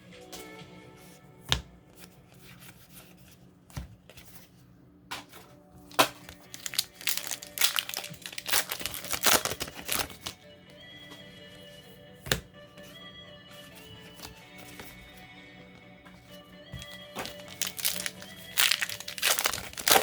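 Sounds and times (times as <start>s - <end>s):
foil wrappers crinkling and tearing: 5.8s - 10.4s, 16.7s - 20.0s.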